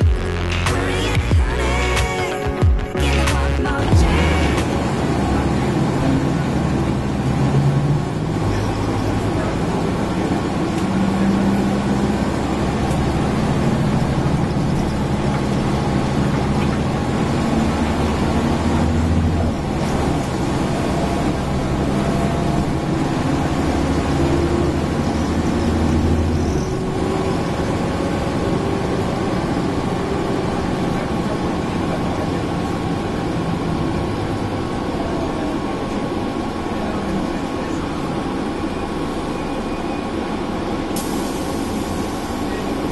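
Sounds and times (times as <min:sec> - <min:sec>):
bus engine running: 0:00.0 - 0:42.9.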